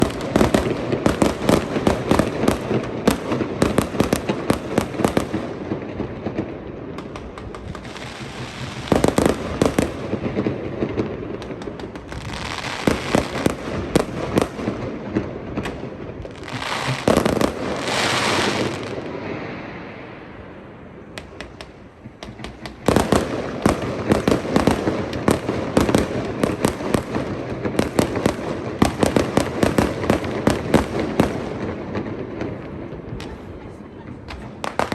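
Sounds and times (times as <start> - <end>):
fireworks hissing and fizzing: 0.0 - 20.1
fireworks banging and crackling: 0.0 - 34.9.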